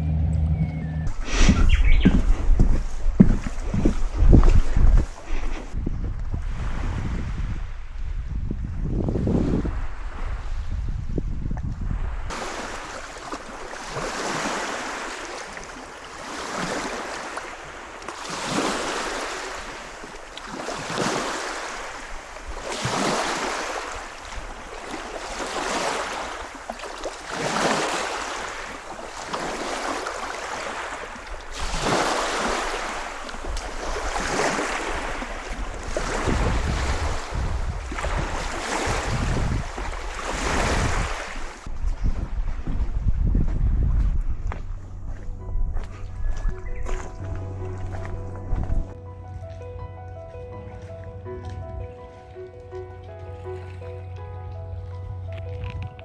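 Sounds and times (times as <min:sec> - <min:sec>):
low rumble: 0:00.0 - 0:03.5
rushing water surges: 0:12.3 - 0:41.7.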